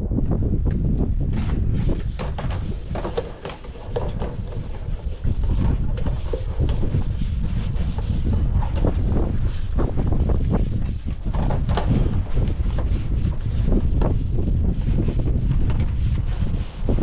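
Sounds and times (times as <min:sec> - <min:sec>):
wind buffeting microphone: 0:00.0 - 0:17.0
scattered knocks and clicks: 0:02.2 - 0:07.1.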